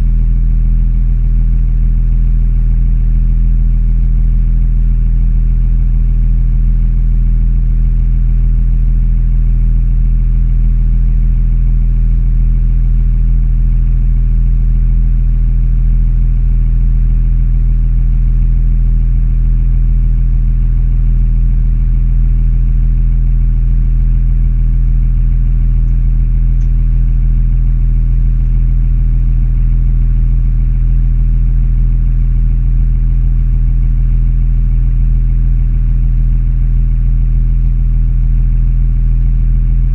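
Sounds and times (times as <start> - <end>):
car engine running: 22.9 - 30.0, 39.4 - 39.9.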